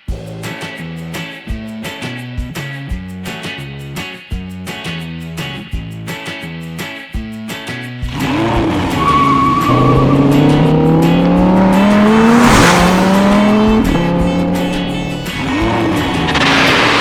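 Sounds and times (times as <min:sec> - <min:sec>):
background music: 0:00.0 - 0:17.0
cartoon engine revving: 0:08.2 - 0:17.0.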